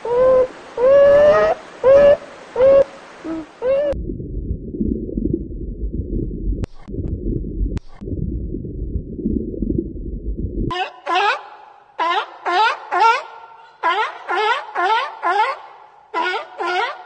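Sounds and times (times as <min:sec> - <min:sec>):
low muffled rumble: 0:03.9 - 0:10.7.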